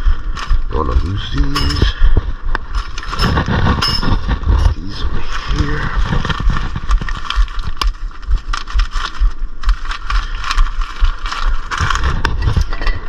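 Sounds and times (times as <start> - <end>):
wind rumble on microphone: 0.0 - 13.0
metal parts clicking and scraping: 1.4 - 2.0, 2.7 - 7.9.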